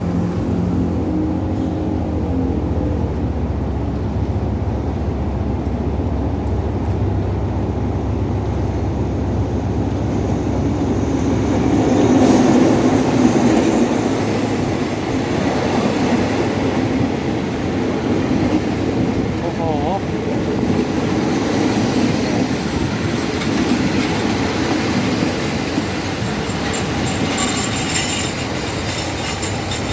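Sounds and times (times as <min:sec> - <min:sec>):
train engine hum: 0:00.0 - 0:29.9
wheels rumbling on rails: 0:00.0 - 0:29.9.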